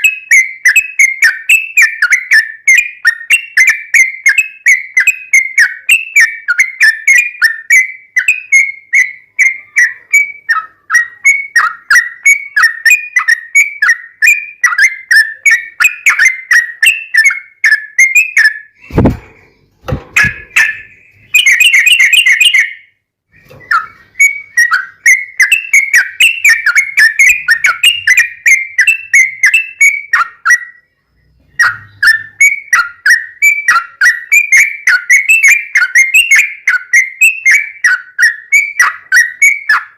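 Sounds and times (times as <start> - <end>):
bird singing whistled notes: 0.0 - 39.9
sharp knocks: 18.9 - 20.8.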